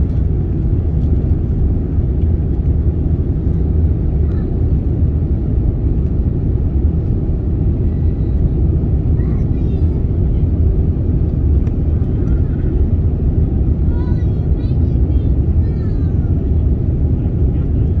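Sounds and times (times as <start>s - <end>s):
jet cabin engine rumble: 0.0s - 18.0s.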